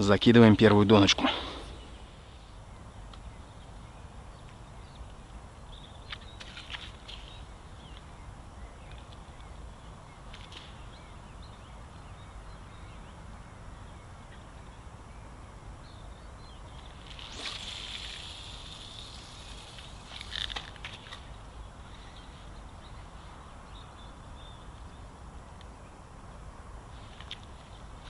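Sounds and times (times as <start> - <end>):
hissing rush: 17.1 - 20.5.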